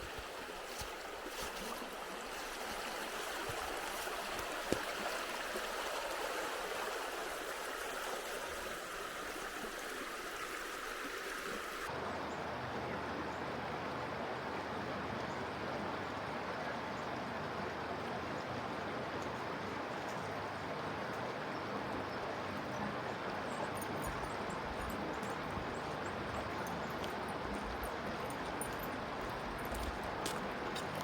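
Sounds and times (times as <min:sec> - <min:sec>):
river water rushing: 0:00.0 - 0:11.9, 0:18.2 - 0:31.0.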